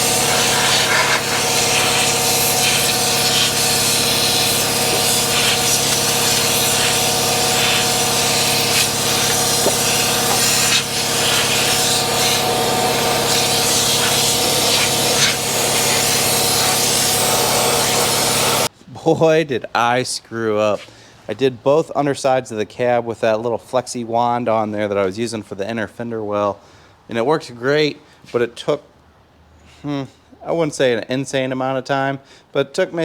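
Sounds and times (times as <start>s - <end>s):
air spray gun hissing: 0.0s - 18.7s
steady hum: 0.0s - 18.7s.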